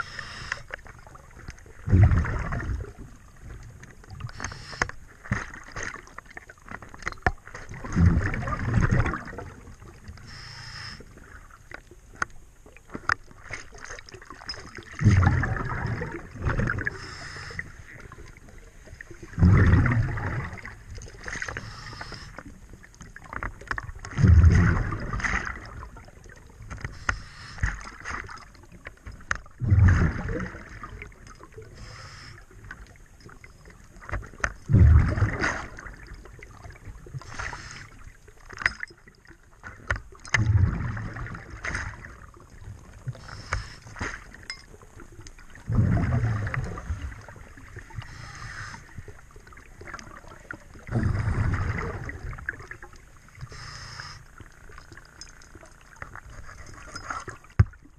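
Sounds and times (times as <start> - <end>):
exhaled bubbles underwater: 0.0 - 4.9, 7.2 - 12.0, 13.7 - 57.9
faint clicks and ticks: 9.9 - 15.3, 26.3 - 29.6, 42.5 - 45.6, 52.4 - 57.9.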